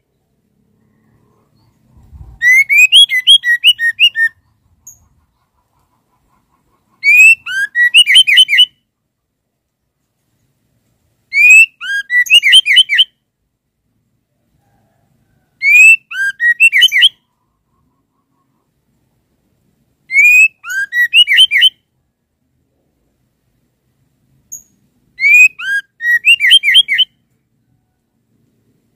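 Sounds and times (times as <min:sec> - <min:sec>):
bird whistling and chirping: 0:01.6 - 0:05.0, 0:07.0 - 0:08.7, 0:11.3 - 0:13.1, 0:15.6 - 0:17.2, 0:20.1 - 0:21.8, 0:25.2 - 0:27.2.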